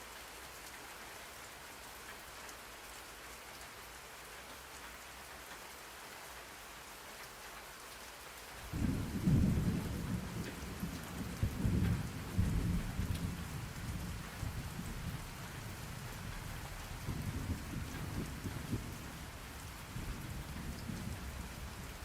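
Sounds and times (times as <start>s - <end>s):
rain hiss: 0.0s - 22.0s
thunder rumbling: 8.7s - 15.2s, 16.5s - 22.0s.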